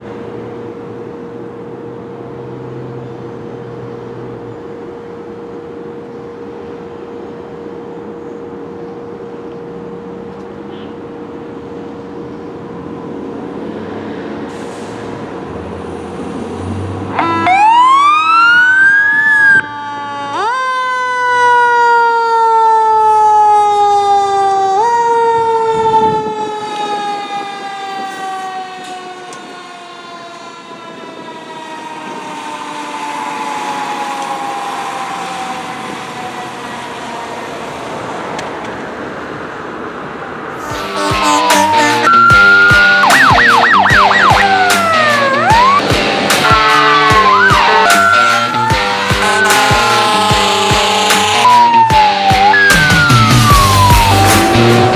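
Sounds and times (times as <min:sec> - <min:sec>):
fire engine running: 0:00.0 - 0:54.9
siren winding up and down: 0:17.1 - 0:38.4, 0:40.6 - 0:54.9.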